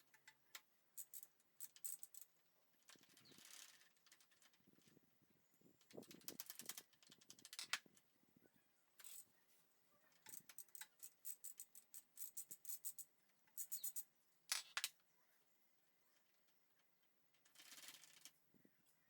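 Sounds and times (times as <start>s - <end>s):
ratchet wrench clicking: 10.2s - 13.0s.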